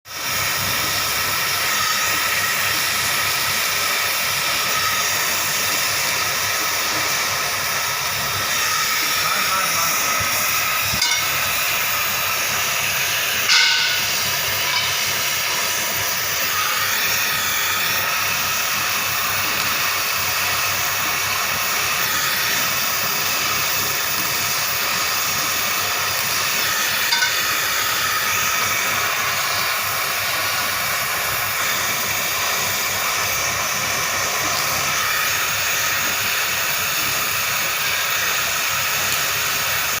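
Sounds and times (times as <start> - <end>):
welding torch flame hissing: 0.1 - 40.0.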